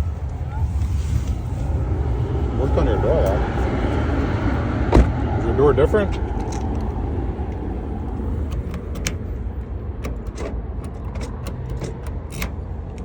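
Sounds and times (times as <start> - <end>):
low rumble: 0.0 - 10.3
key clicking in car door lock: 8.5 - 9.4, 10.0 - 13.0.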